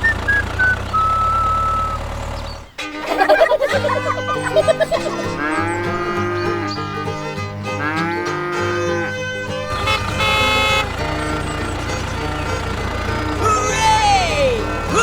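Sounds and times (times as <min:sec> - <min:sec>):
cow mooing: 0:03.1 - 0:07.2, 0:07.8 - 0:15.0.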